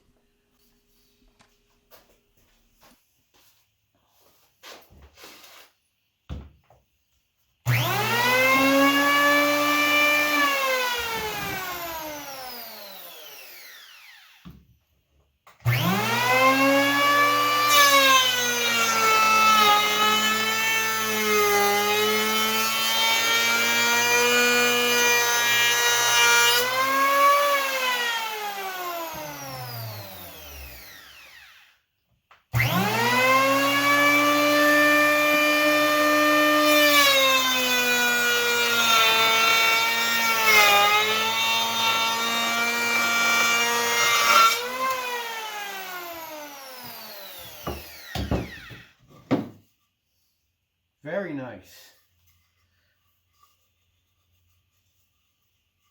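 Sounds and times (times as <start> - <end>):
planer blades shaving wood: 7.7 - 14.4, 15.6 - 31.7, 32.5 - 49.5
electric hand planer motor whining: 7.7 - 14.5, 15.6 - 31.8, 32.5 - 49.5.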